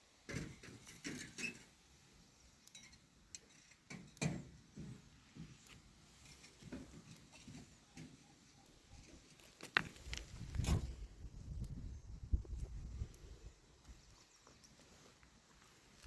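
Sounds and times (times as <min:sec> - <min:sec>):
scuffing and rustling: 0:09.3 - 0:11.0, 0:13.8 - 0:16.0.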